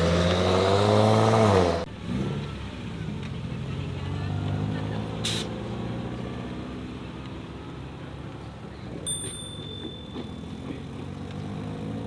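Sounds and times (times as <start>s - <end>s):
car engine rumbling: 0.0s - 12.0s
short high ding: 9.0s - 10.8s.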